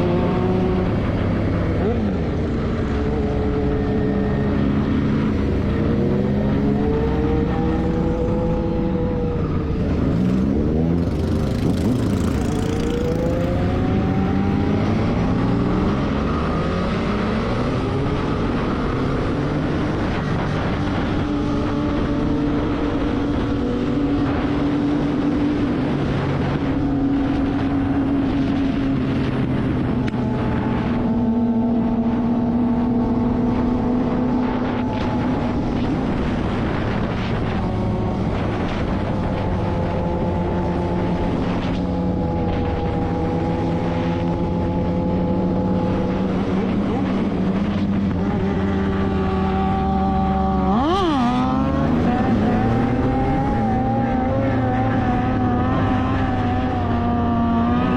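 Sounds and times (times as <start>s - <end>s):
motorcycle engine running: 0.0s - 16.2s
road and wind noise: 0.0s - 57.9s.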